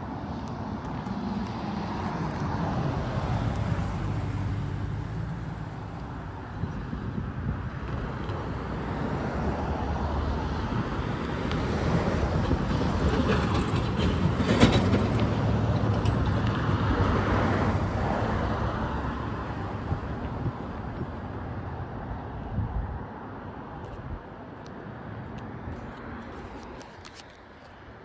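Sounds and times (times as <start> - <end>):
freight train wheels on rails: 10.5 - 17.8.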